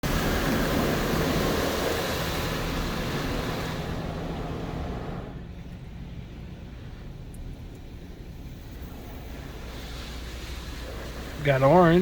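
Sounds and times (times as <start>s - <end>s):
high-pressure water spray hissing: 0.0s - 5.4s, 8.0s - 12.0s.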